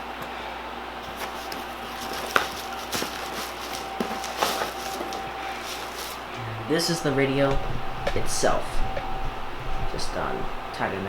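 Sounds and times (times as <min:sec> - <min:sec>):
packaging taps and knocks: 0:01.0 - 0:06.3.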